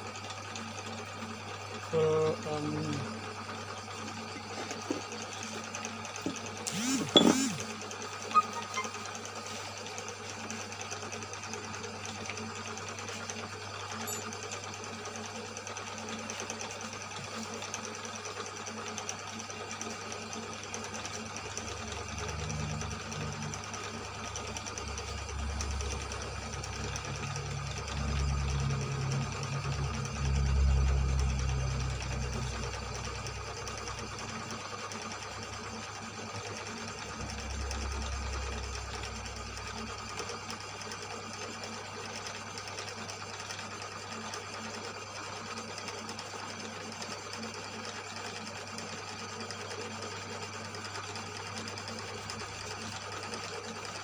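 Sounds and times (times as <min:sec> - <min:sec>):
boring machine cutting metal: 0:01.8 - 0:03.3, 0:06.2 - 0:09.7.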